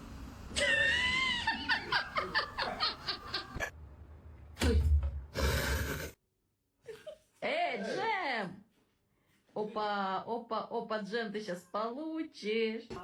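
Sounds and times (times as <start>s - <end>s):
rapid pulsed laughter: 0.6s - 3.7s.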